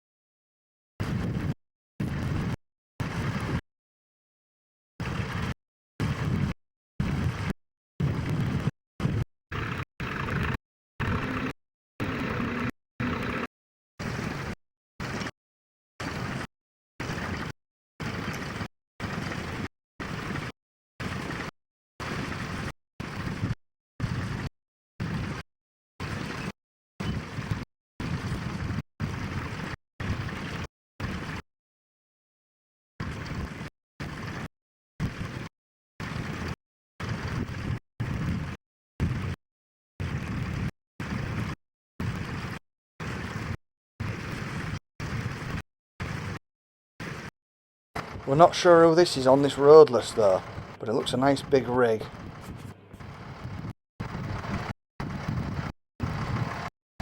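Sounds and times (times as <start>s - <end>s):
wind on microphone: 1.0s - 3.6s, 5.0s - 12.6s, 17.0s - 25.4s, 26.0s - 31.4s, 33.0s - 35.4s, 36.0s - 39.4s, 40.0s - 46.4s, 48.0s - 56.7s
tractor engine rumble: 48.0s - 56.7s.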